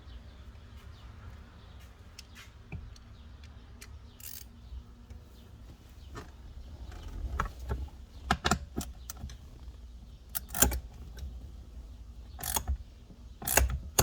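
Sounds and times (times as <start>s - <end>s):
socket wrench metallic clicks: 2.2s - 4.6s, 10.3s - 10.9s, 12.3s - 12.8s, 13.4s - 14.0s.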